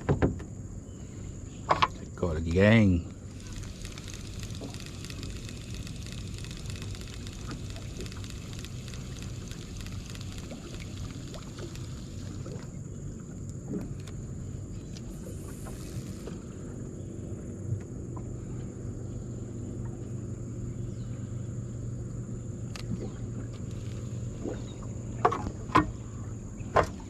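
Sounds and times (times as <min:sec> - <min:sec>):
low steady hum: 0:00.6 - 0:27.0
thin high whine: 0:02.2 - 0:12.7, 0:14.8 - 0:17.6
light clicks: 0:03.3 - 0:12.6.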